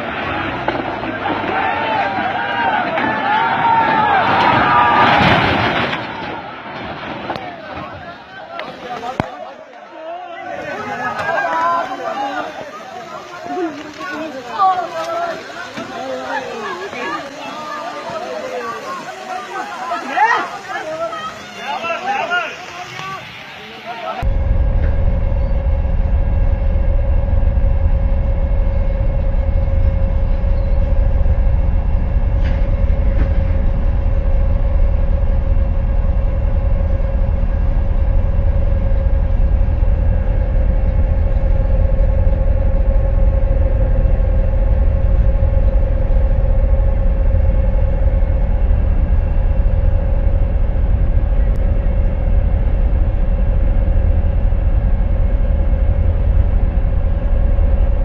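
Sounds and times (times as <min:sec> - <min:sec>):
heavy machine engine rumbling: 0:00.0 - 0:09.7, 0:24.2 - 0:58.0.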